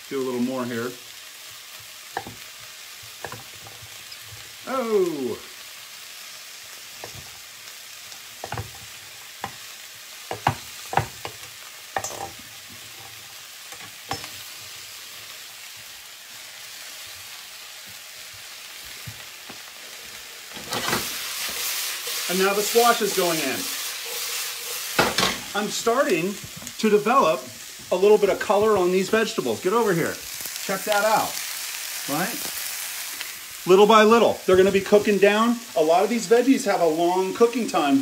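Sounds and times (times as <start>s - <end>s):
vegetables sizzling in a skillet: 0.0s - 38.0s
short exclamation: 4.6s - 5.4s.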